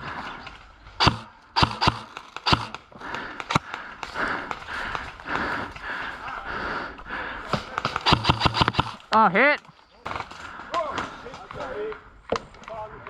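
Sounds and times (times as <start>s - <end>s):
airsoft guns firing sharp cracks: 1.0s - 3.8s, 7.8s - 9.1s.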